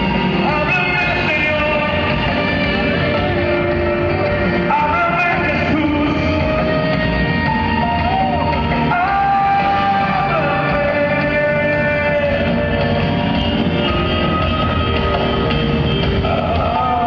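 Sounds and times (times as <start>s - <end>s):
person singing: 0.0s - 14.5s, 16.0s - 17.0s
live rock band playing: 0.0s - 17.0s.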